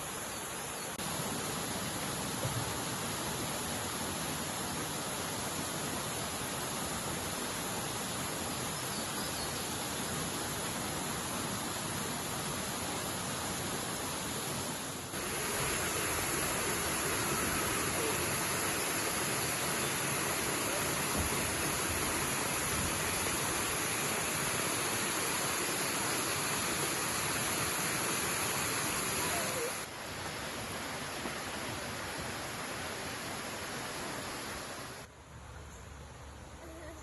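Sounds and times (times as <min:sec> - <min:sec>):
waterfall roaring: 0:09.5 - 0:35.1.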